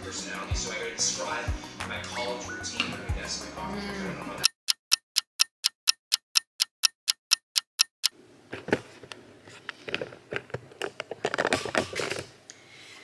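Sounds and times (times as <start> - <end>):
clock ticking: 4.4 - 8.2.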